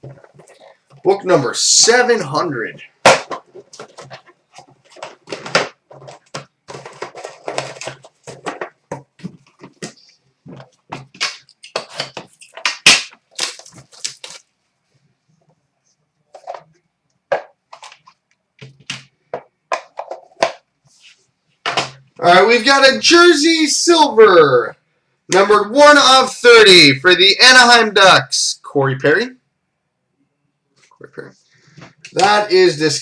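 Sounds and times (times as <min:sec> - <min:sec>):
packaging crinkling and tearing: 0:11.2 - 0:14.5.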